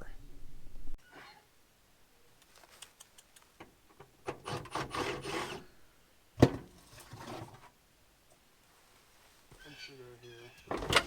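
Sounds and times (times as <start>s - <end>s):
rough scraping and rubbing: 4.3s - 5.7s, 6.8s - 7.7s.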